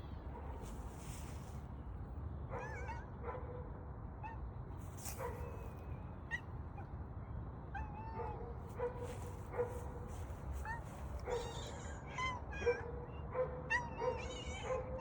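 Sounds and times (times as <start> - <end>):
small animal high-pitched yips: 2.6 - 3.0, 10.6 - 15.0.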